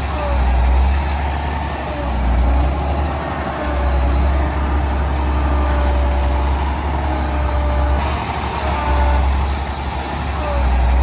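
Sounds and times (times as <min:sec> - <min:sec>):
heavy diesel machinery rumbling: 0:00.0 - 0:11.0.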